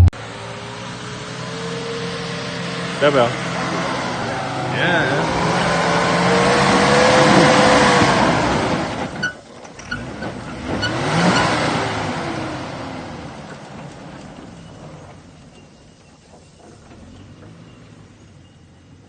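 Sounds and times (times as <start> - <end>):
engine revving hard: 0.0 - 9.2, 9.9 - 13.4.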